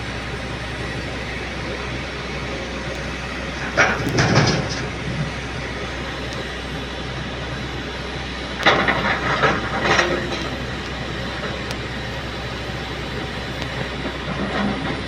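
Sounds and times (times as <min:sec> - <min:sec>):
excavator diesel engine running: 0:00.0 - 0:15.0
rattling and clatter: 0:03.6 - 0:05.2.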